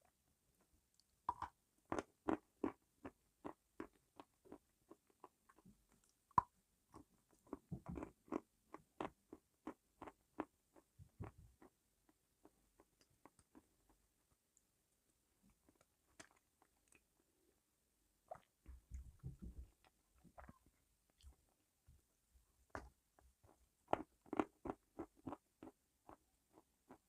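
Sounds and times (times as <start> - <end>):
person chewing crunchy food: 1.3 - 11.7, 15.6 - 17.0, 23.4 - 27.0.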